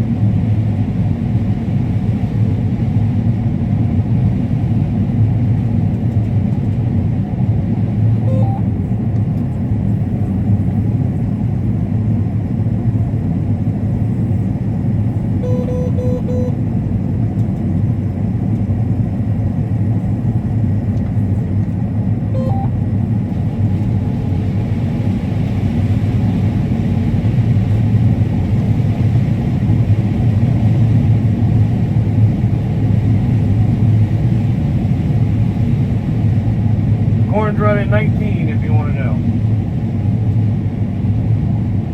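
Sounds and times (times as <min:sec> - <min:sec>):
combine harvester droning: 0:07.8 - 0:09.1, 0:14.9 - 0:17.2, 0:22.0 - 0:30.2, 0:32.7 - 0:41.3
short electronic beeps: 0:08.2 - 0:08.7, 0:15.4 - 0:16.6, 0:22.4 - 0:22.8.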